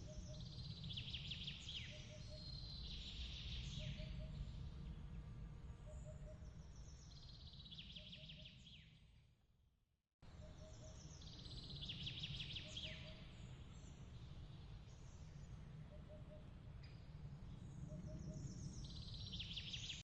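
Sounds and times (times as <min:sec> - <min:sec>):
faint bird chirps: 0:00.0 - 0:05.0, 0:05.8 - 0:09.0, 0:10.3 - 0:14.0, 0:14.6 - 0:20.0
low steady rumble: 0:00.0 - 0:07.8.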